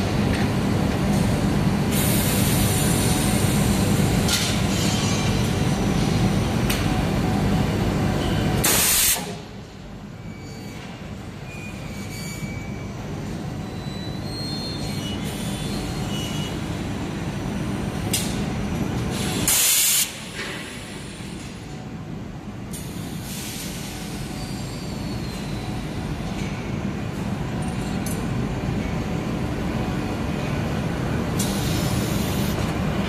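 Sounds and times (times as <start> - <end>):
loud pneumatic hiss: 1.9 - 3.7, 8.6 - 9.4, 19.1 - 21.3, 22.8 - 25.5.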